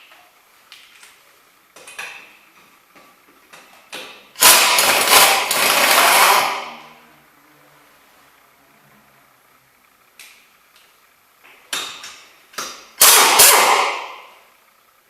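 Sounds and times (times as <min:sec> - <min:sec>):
impact wrench rattling: 0:04.1 - 0:06.7.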